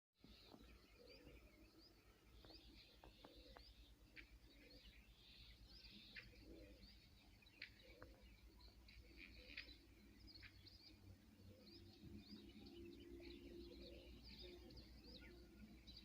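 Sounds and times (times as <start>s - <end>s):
small birds chirping: 0.2s - 16.0s.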